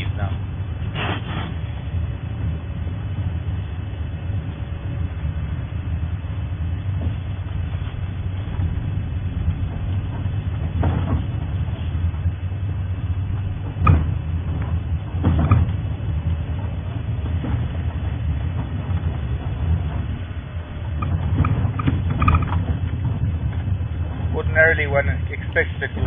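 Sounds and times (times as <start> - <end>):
vehicle engine rumbling: 0.0 - 26.0
rough clatter: 6.8 - 26.0.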